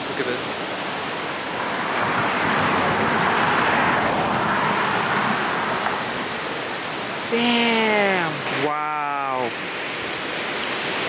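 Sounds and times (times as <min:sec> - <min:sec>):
vehicle passing on road: 0:00.9 - 0:07.2.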